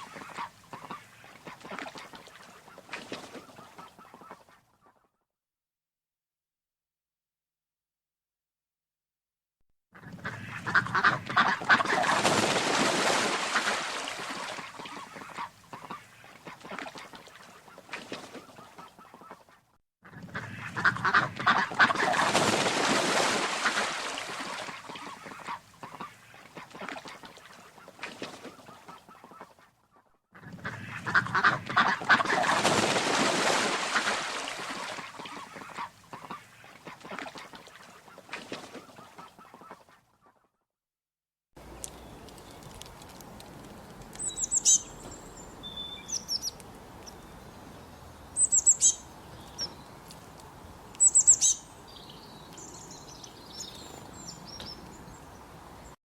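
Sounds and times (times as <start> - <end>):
flock of waterfowl calling: 0.0 - 5.0, 10.2 - 19.5, 30.7 - 39.9.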